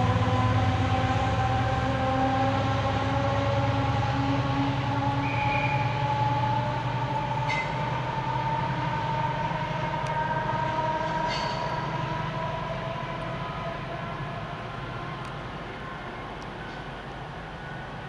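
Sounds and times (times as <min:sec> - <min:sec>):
diesel locomotive engine droning: 0:00.0 - 0:18.0
short high squeals: 0:05.2 - 0:06.0.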